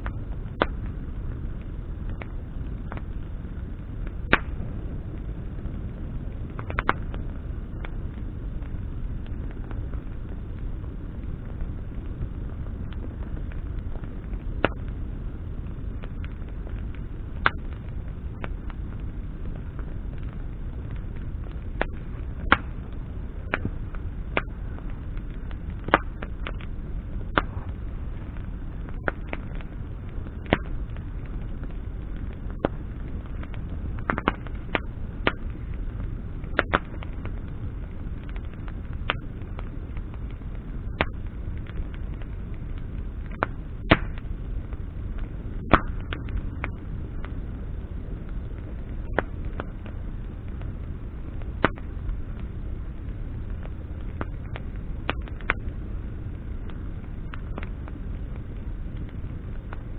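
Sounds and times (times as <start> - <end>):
campfire crackling and popping: 0.0 - 59.9
low fire rumble: 0.0 - 59.9.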